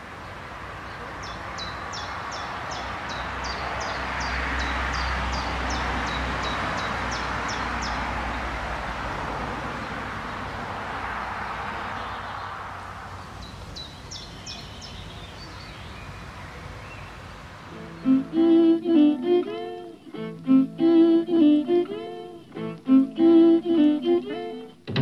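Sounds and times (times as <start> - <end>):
outdoor rush: 0.0 - 18.0
bird singing high notes: 17.7 - 24.7.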